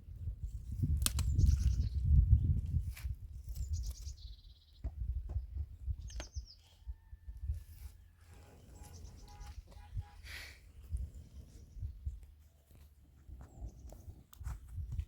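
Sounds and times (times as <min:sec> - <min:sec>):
birds chirping: 0:03.5 - 0:07.1, 0:08.0 - 0:14.2.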